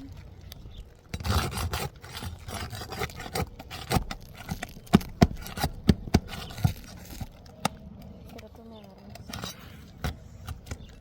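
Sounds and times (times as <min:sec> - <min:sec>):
rustling and scraping shingles: 0:00.0 - 0:11.0
sharp knocks on shingles: 0:03.9 - 0:06.9.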